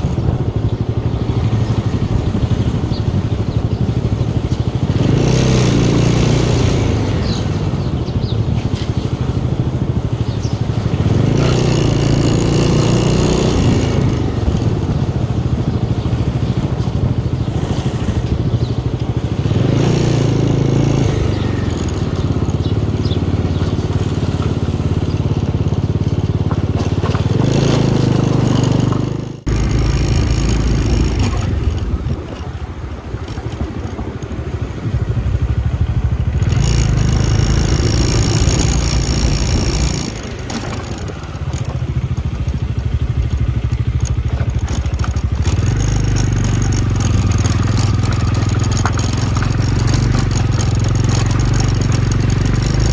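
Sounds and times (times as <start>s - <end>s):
wind rushing over microphone: 0.0s - 23.9s
motorcycle engine running: 0.0s - 52.9s.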